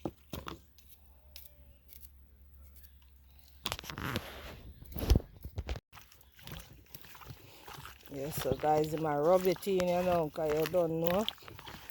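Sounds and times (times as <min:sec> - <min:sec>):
food preparation rustling and scraping: 0:00.0 - 0:11.9.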